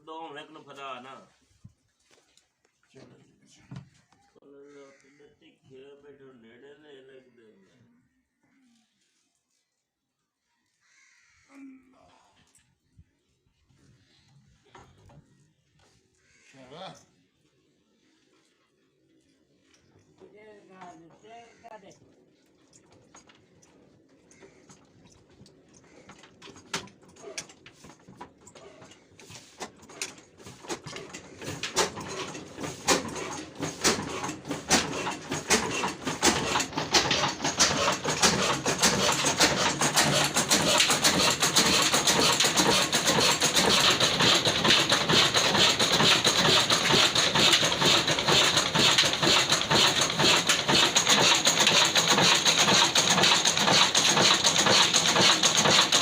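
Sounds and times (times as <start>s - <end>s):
diesel engine starting: 26.2s - 56.0s.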